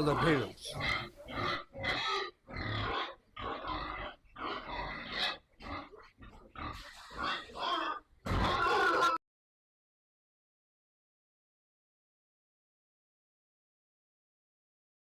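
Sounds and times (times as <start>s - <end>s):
pigs grunting: 0.0s - 9.2s.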